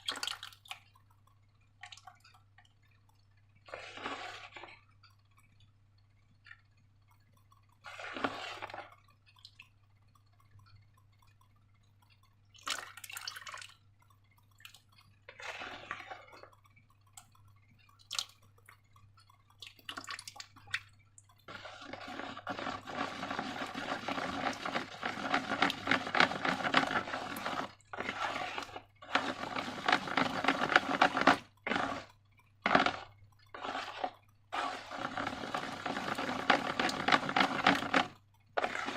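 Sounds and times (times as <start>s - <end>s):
slime squelching by hand: 3.6s - 4.9s, 7.5s - 9.7s, 14.4s - 38.9s.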